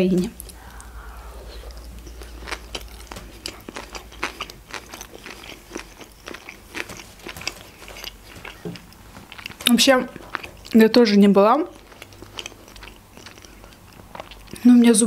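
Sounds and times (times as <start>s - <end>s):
wet chewing clicks: 0.2s - 15.0s.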